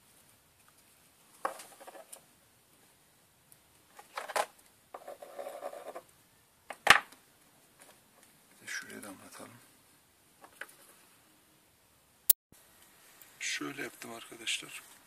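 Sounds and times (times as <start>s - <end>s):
plastic parts scraping and rubbing: 1.4s - 2.2s, 3.9s - 6.1s.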